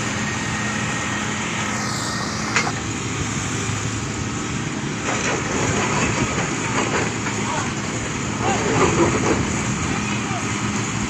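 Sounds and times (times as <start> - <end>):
diesel excavator engine running: 0.0 - 11.0.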